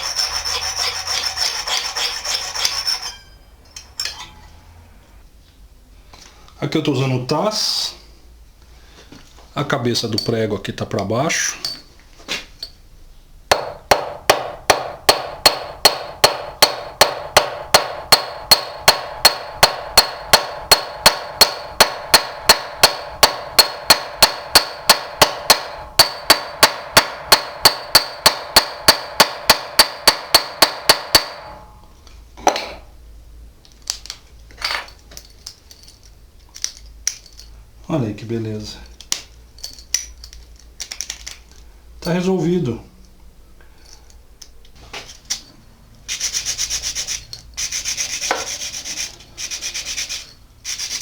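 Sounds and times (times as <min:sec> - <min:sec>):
hammer striking metal: 0:13.5 - 0:31.9.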